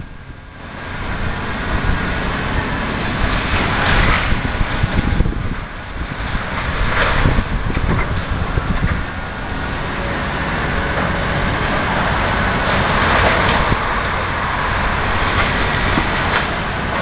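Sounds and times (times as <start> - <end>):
demolition machinery running: 0.0 - 17.0.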